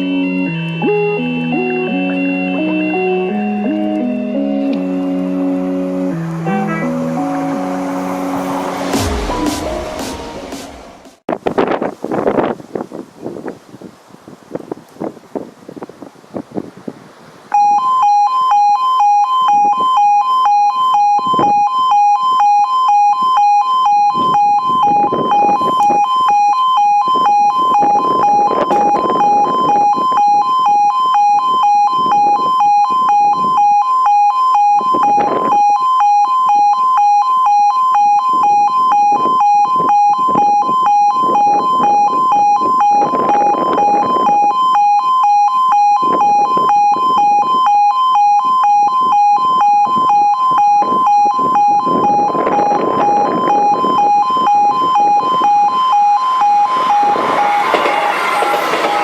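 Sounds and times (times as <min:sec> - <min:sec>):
two-tone warning alarm: 0:00.0 - 0:09.6, 0:17.5 - 0:59.0.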